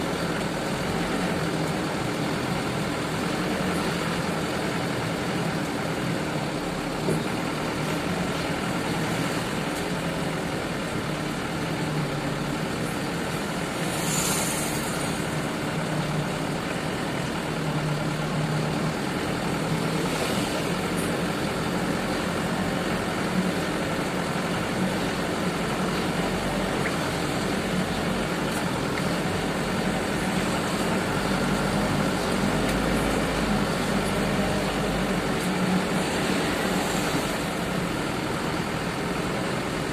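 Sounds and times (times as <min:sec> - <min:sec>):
truck engine running: 0:00.0 - 0:39.9
brief hiss: 0:13.8 - 0:15.2.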